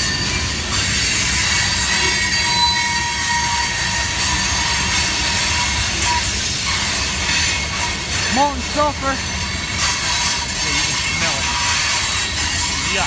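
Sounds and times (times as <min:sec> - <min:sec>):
wheels squealing: 0:00.0 - 0:13.0.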